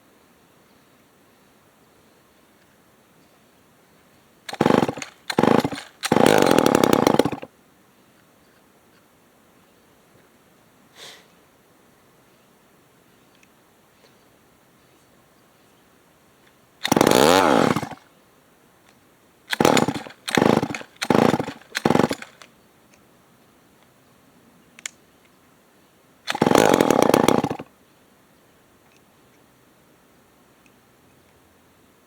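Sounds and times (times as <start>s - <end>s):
chainsaw engine revving in bursts: 4.5s - 7.5s, 16.8s - 18.0s, 19.5s - 22.4s, 26.3s - 27.7s.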